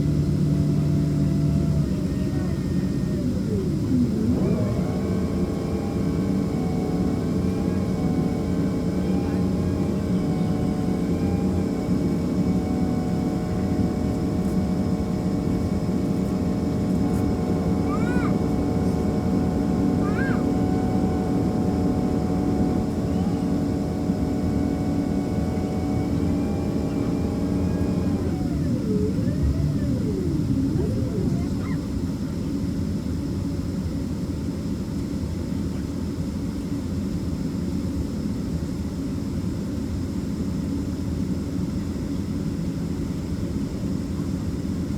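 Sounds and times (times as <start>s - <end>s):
whining tones: 0.0s - 32.5s
aircraft cabin hum: 0.0s - 35.2s.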